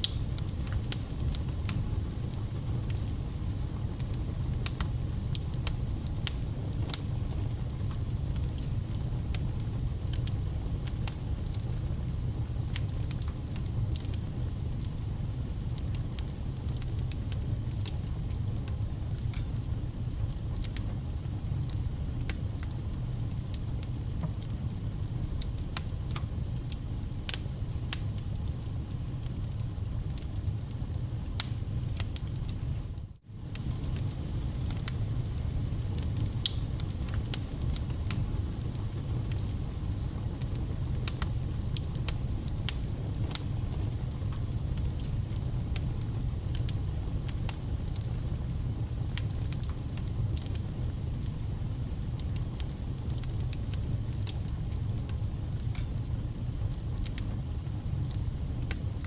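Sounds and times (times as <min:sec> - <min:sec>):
fire crackling and popping: 0:00.0 - 0:59.0
wood fire rumble: 0:00.0 - 0:59.0.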